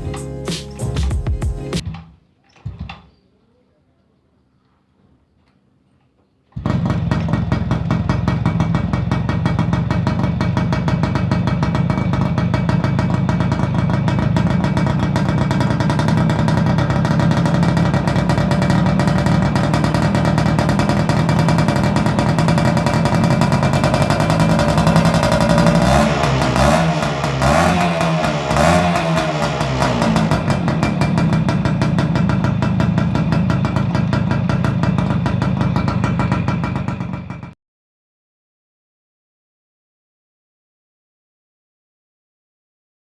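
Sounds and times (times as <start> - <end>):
two-stroke engine crackling: 5.4 - 37.6.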